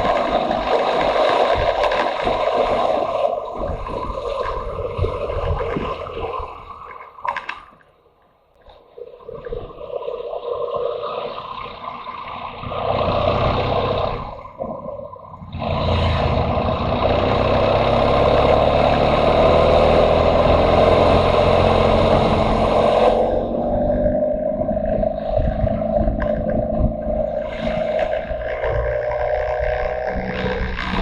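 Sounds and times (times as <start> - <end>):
wind rushing over microphone: 0.0 - 6.9, 12.5 - 31.0
motorcycle engine accelerating: 10.6 - 14.6, 15.2 - 31.0.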